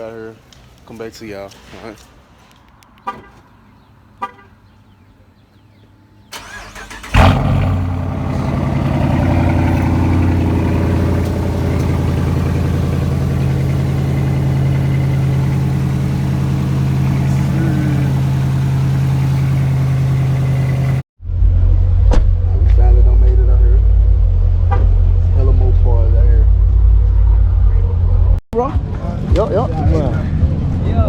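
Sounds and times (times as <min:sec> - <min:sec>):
car engine starting and idling: 0:06.3 - 0:21.0.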